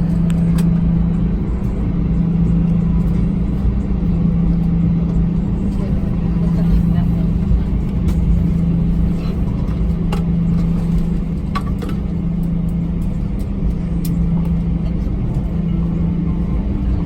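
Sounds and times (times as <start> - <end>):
airplane cabin engine hum: 0.0 - 17.0.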